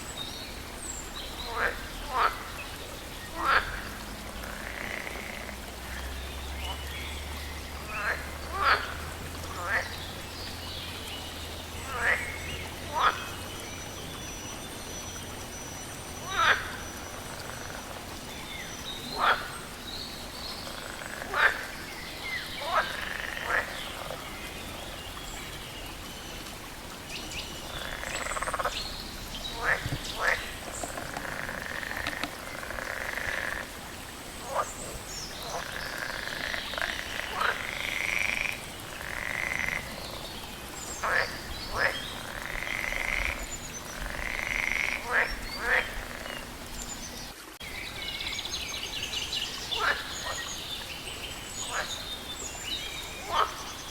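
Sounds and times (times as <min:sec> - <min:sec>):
frogs croaking: 0:00.0 - 0:53.9
frogs drawn-out calls: 0:01.4 - 0:06.8, 0:07.4 - 0:10.2, 0:11.8 - 0:13.5, 0:14.9 - 0:24.3, 0:27.6 - 0:28.8, 0:29.4 - 0:40.3, 0:41.0 - 0:47.2, 0:49.7 - 0:50.5, 0:51.6 - 0:52.3, 0:53.0 - 0:53.9.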